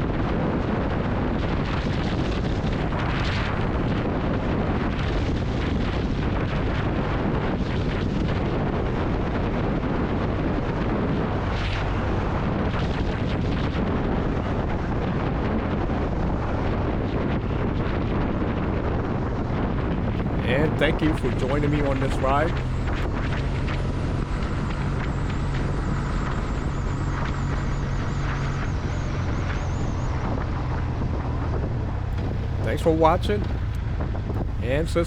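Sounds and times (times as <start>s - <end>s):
motorcycle engine: 20.2s - 23.0s, 32.2s - 33.8s
road noise: 20.2s - 23.1s, 32.0s - 33.8s, 34.4s - 35.0s.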